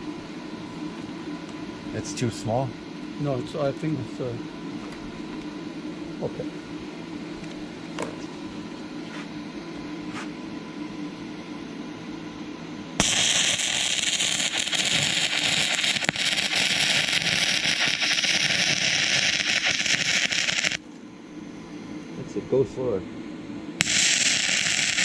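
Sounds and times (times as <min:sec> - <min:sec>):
welding arc crackling and hissing: 0:13.0 - 0:20.8, 0:23.8 - 0:25.0.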